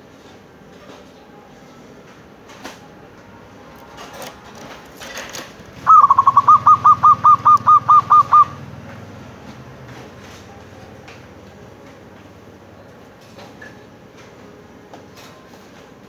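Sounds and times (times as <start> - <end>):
dove cooing: 3.9 - 8.8.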